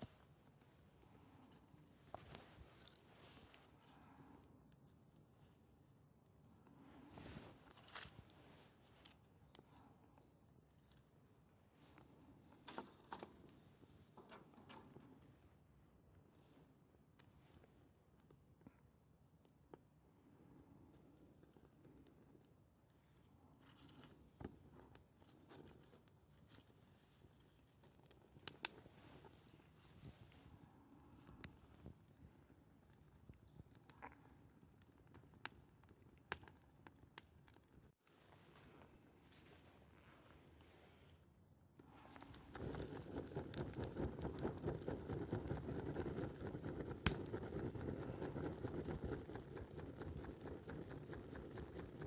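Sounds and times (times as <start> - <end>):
campfire crackling and popping: 27.8 - 28.8, 32.8 - 37.8, 42.2 - 52.0.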